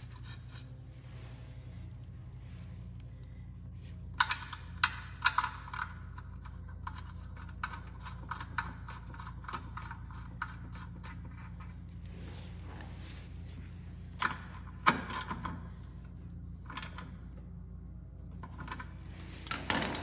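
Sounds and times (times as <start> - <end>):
tools clicking and scraping: 0.0 - 0.9, 4.1 - 11.8, 18.3 - 20.0
steady low hum: 0.0 - 20.0.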